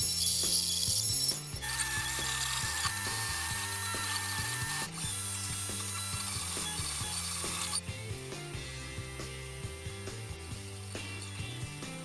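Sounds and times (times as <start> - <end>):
stepper motors whirring: 0.0 - 7.9.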